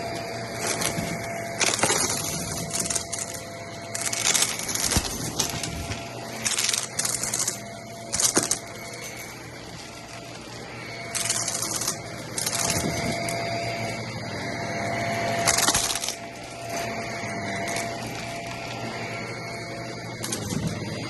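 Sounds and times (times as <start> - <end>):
vacuum cleaner running over carpet: 0.0 - 21.0
crackling rattling of sucked beads: 0.6 - 13.4, 15.4 - 16.8.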